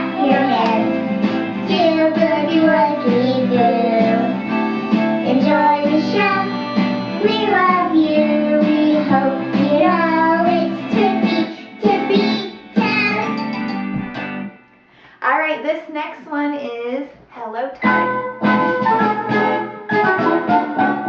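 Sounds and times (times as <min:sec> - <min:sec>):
person singing a melody: 0:00.0 - 0:01.0, 0:01.6 - 0:04.5, 0:05.2 - 0:13.5
instrumental accompaniment: 0:00.0 - 0:15.0, 0:17.8 - 0:21.0.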